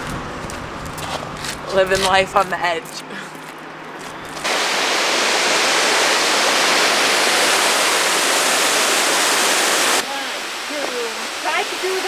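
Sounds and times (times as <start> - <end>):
waterfall rushing: 4.4 - 12.0.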